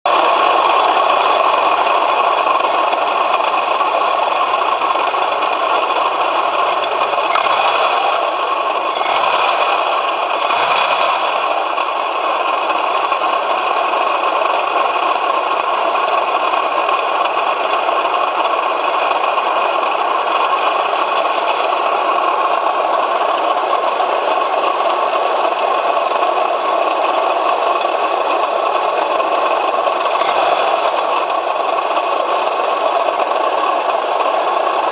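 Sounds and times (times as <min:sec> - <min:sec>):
car engine running: 0:00.1 - 0:34.9.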